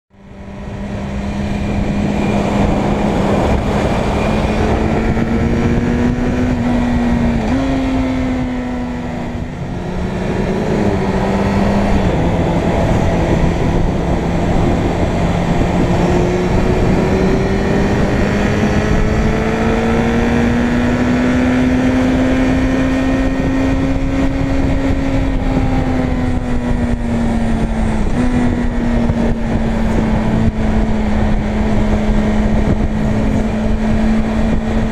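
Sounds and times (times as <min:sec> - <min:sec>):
wind noise: 0:00.2 - 0:34.9.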